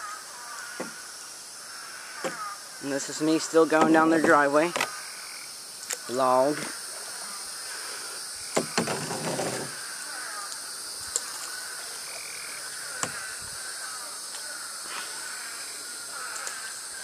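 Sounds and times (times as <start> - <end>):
frog chorus calling: 0.0 - 17.0
night insects hissing: 0.0 - 17.0
sharp knocks: 3.7 - 4.9, 8.5 - 9.7.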